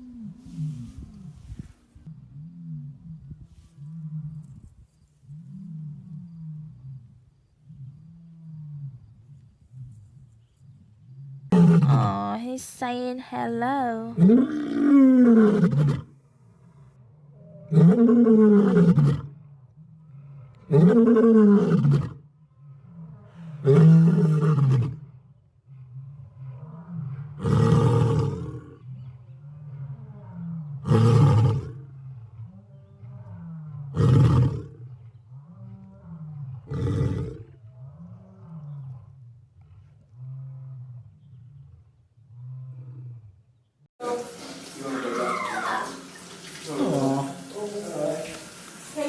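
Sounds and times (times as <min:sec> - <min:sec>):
lion roaring and grunting: 0:32.4 - 0:39.2.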